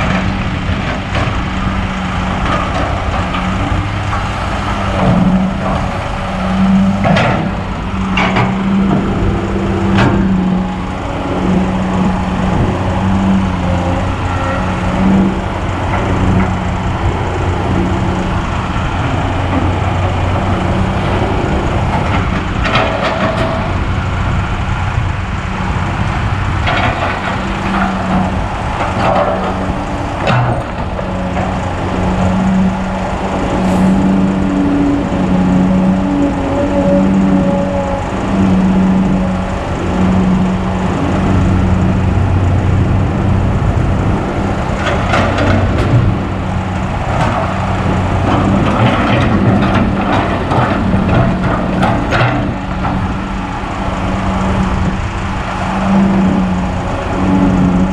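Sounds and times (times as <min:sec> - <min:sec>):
excavator diesel engine: 0:00.0 - 0:57.9.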